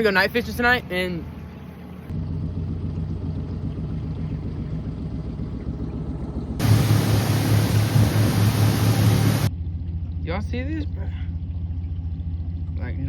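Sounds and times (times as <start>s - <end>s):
engine humming: 0.8s - 10.3s
hiss: 6.6s - 9.5s.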